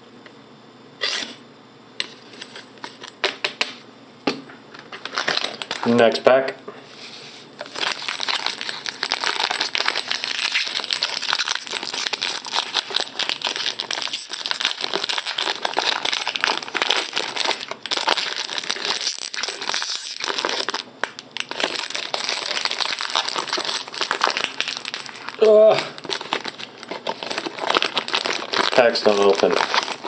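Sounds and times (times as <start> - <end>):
wrapper crinkling and tearing: 4.9 - 6.2, 7.6 - 30.0.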